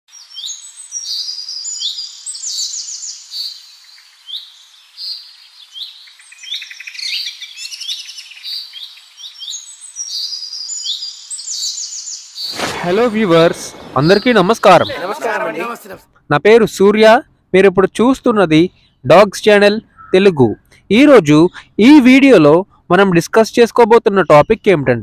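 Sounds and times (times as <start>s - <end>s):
birds chirping and singing: 0.2s - 15.0s.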